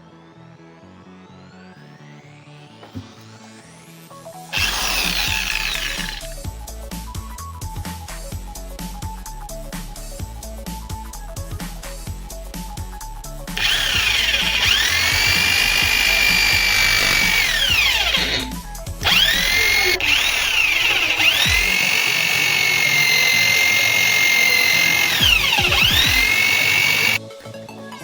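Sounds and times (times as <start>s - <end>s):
electric motor whining: 4.6s - 6.4s, 13.6s - 27.2s.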